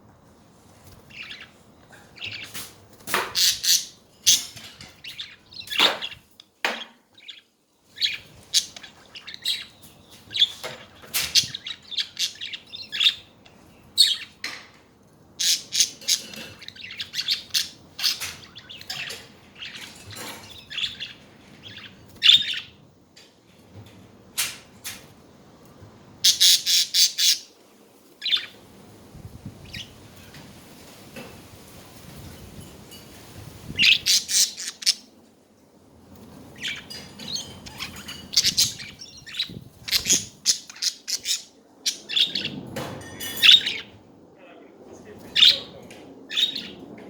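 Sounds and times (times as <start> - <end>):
budgerigars chattering: 26.2 - 27.5, 33.8 - 35.0, 36.6 - 42.5.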